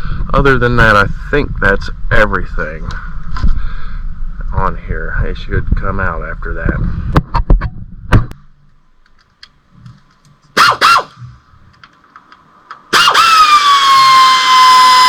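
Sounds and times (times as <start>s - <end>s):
power tool whining: 12.9s - 15.0s.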